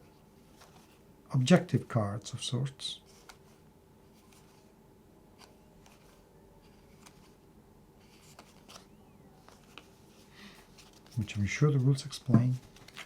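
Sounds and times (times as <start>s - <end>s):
cards being handled clicking: 8.2s - 9.9s, 12.3s - 13.0s.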